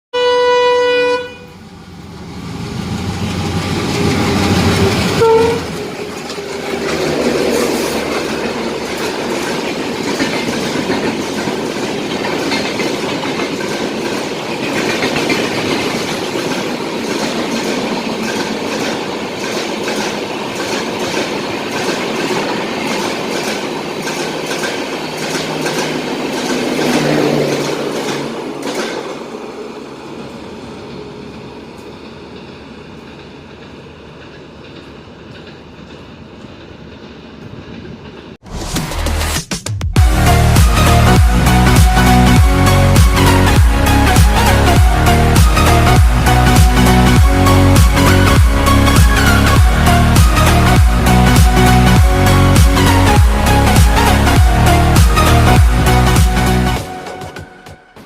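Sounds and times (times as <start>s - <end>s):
loud train rumble: 0.2s - 39.4s, 40.0s - 58.0s
train wheels clicking over rail joints: 3.1s - 29.5s, 31.7s - 38.4s.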